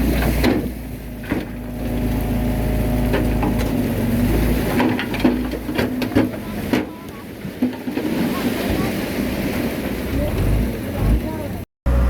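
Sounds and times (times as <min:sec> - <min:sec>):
bulldozer diesel engine running: 0:00.0 - 0:07.4, 0:10.1 - 0:12.0.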